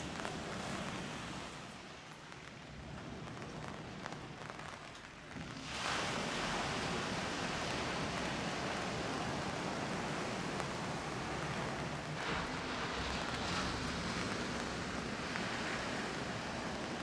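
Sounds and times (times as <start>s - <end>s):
faint ticks: 2.0s - 17.0s.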